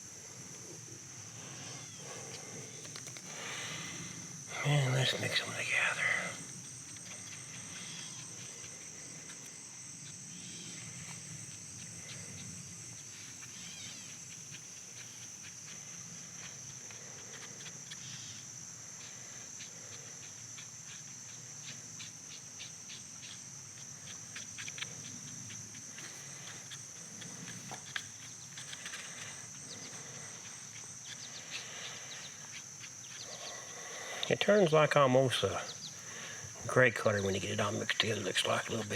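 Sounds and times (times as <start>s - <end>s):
high insect drone: 0.0s - 38.9s
epoxy being stirred on cardboard: 6.5s - 34.3s.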